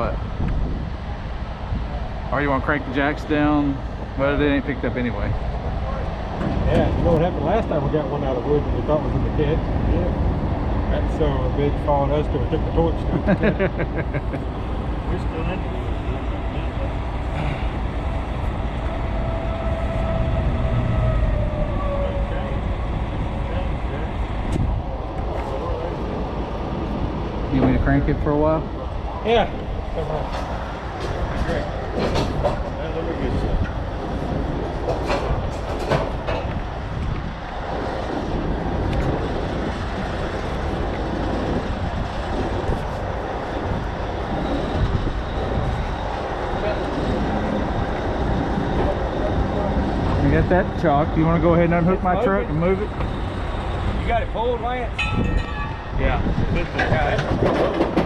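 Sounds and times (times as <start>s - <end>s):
diesel truck engine rumbling: 0.0s - 58.0s
engine whine: 0.0s - 58.0s
metallic knocks: 54.9s - 58.0s.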